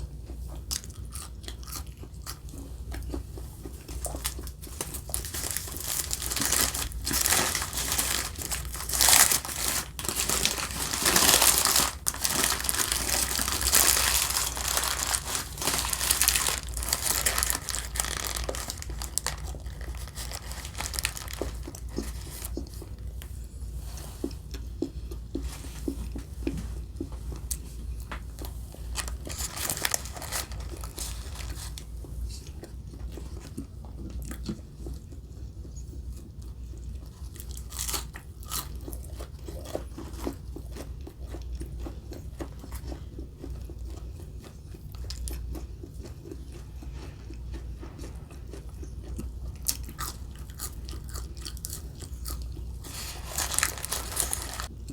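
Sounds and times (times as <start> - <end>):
paper wrapping crinkling and tearing: 4.2 - 22.7, 28.9 - 32.0, 52.8 - 54.7.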